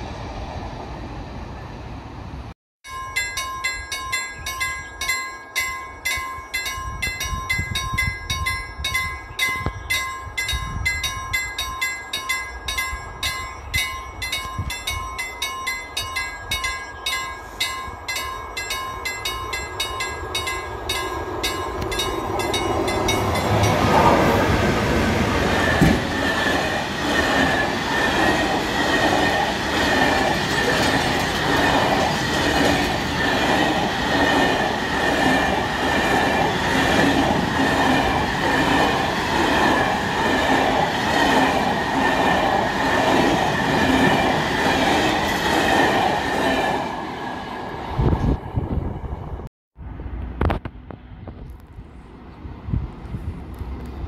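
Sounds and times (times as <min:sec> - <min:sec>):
level crossing bell ringing: 0:02.8 - 0:24.2
train wheels clattering over rail joints: 0:25.5 - 0:35.9.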